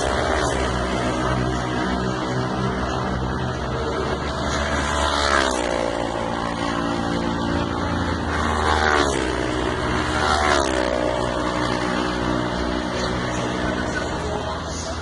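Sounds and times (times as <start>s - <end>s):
motorcycles racing at high revs: 0.0s - 15.0s.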